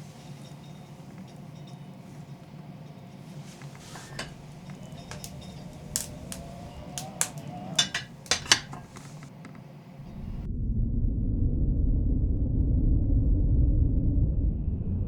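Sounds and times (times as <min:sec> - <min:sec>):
kitchen utensils and dishes clinking: 0:00.0 - 0:09.4
steady low hum: 0:00.0 - 0:14.6.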